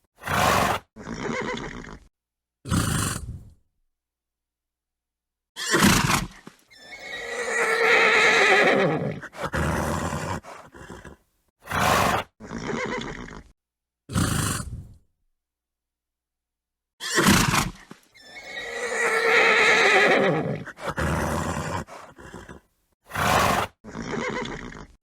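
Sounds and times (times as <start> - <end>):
horse snorting: 0.2 - 2.1, 2.7 - 3.5, 5.7 - 13.5, 14.1 - 15.0, 17.1 - 25.0
horse whinnying: 0.2 - 2.1, 5.6 - 13.5, 17.0 - 25.0.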